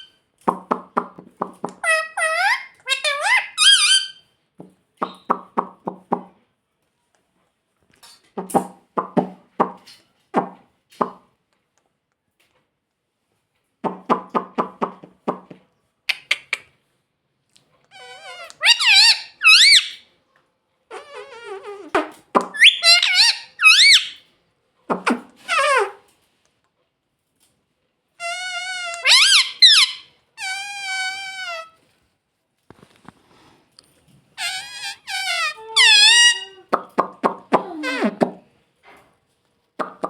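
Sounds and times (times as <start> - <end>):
parrot chattering: 0.0 - 4.2, 5.0 - 6.2, 13.9 - 16.7, 17.9 - 20.0, 20.9 - 24.2, 24.9 - 26.0, 28.2 - 31.8, 34.4 - 38.4
parrot squawking: 0.0 - 4.2, 17.9 - 20.0, 20.9 - 24.2, 24.9 - 26.0, 28.2 - 31.8, 34.4 - 38.4.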